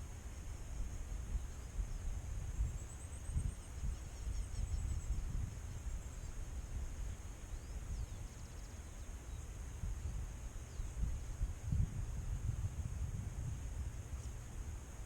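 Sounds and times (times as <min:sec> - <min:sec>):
wind rumbling on microphone: 0:01.3 - 0:07.2, 0:09.8 - 0:14.4.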